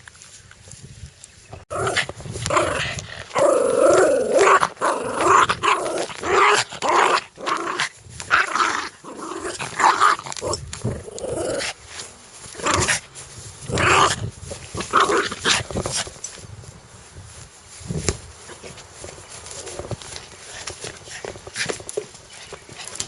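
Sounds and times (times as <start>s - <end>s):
dog growling: 1.7s - 11.8s.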